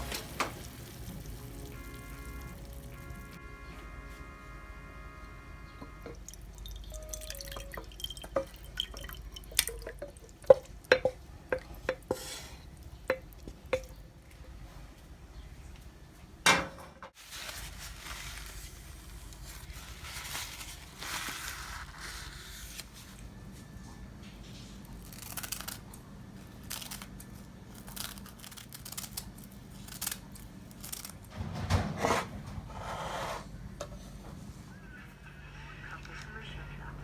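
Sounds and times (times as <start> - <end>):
rustling: 17.2 - 23.6
heavy clunk: 31.3 - 32.7.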